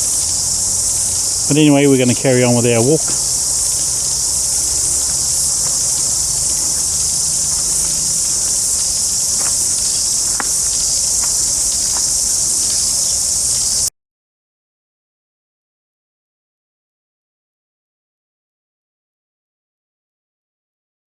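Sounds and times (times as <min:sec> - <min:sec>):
insects chorus: 0:00.0 - 0:13.9
faint ticks: 0:03.0 - 0:13.9.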